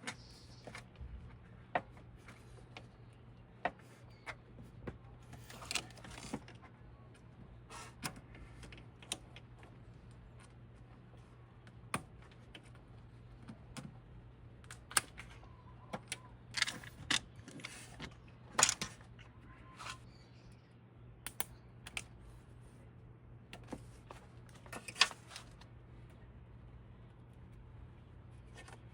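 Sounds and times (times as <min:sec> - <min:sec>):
faint steady low hum: 0:00.0 - 0:28.9
metal parts clicking and clinking: 0:16.5 - 0:19.1.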